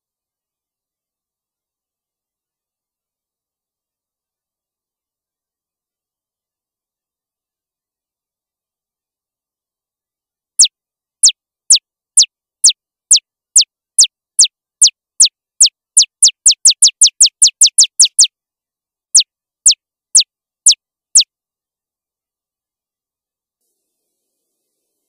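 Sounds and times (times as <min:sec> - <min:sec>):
electronic laser zap chirps: 0:16.0 - 0:18.3.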